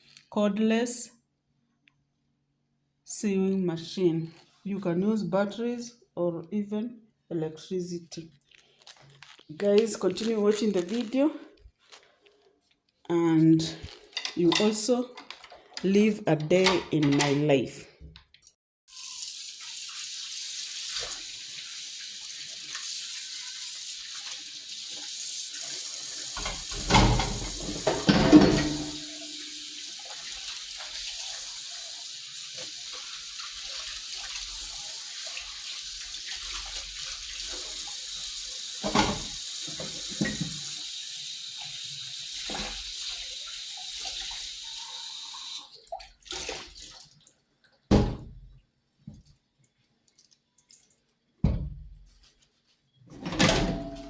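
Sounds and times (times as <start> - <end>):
dishes knocking in sink: 26.4 - 29.4
tap running into sink: 26.4 - 30.2, 38.8 - 40.8.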